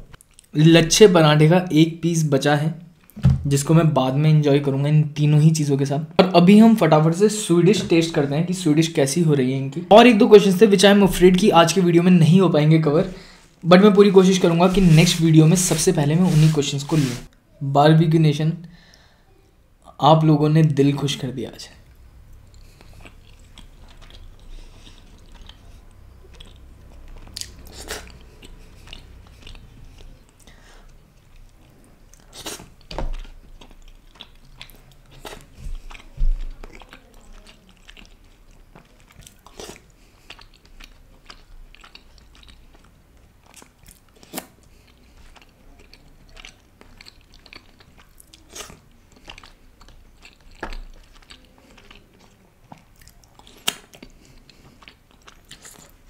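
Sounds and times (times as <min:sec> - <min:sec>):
loud low thump: 0:03.2 - 0:03.6
chewing soft food: 0:21.7 - 0:56.0.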